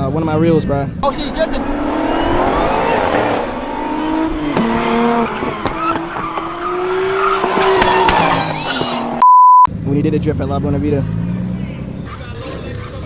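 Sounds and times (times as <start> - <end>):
car engine revving hard: 0.4 - 9.2, 9.9 - 13.0
tyres squealing and skidding: 1.0 - 9.2, 11.0 - 13.0.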